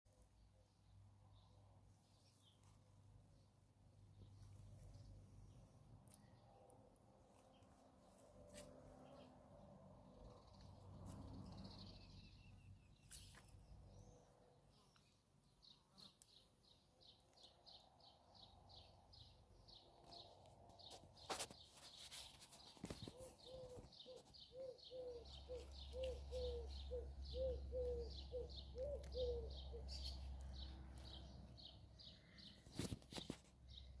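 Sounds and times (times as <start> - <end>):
small bird high chirps: 20.2 - 34.0
lower bird call: 21.3 - 30.2.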